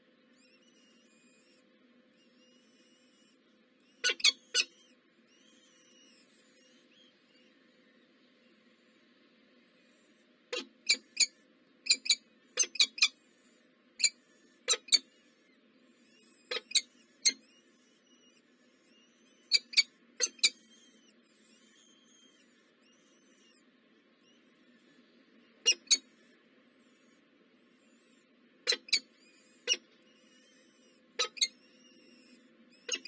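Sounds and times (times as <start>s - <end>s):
birds chirping squeakily: 2.2s - 7.5s, 10.5s - 23.6s, 25.7s - 27.2s, 27.8s - 33.0s
low steady hum: 4.9s - 12.6s.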